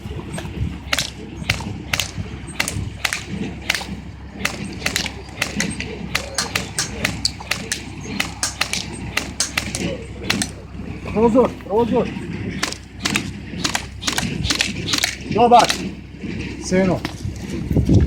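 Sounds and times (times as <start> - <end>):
airsoft gun firing: 0.9 - 10.7, 12.6 - 16.0.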